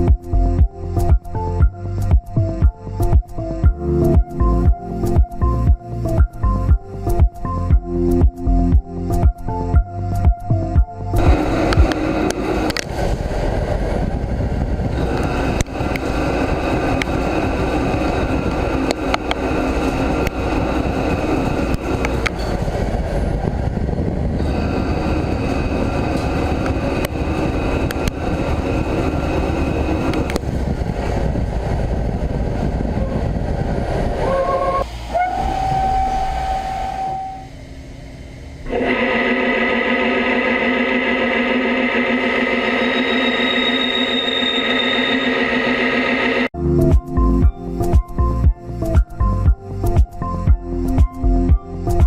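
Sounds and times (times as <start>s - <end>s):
machine whine: 11.2s - 12.9s, 24.3s - 30.4s, 34.7s - 46.5s
lathe cutting metal: 38.7s - 46.5s.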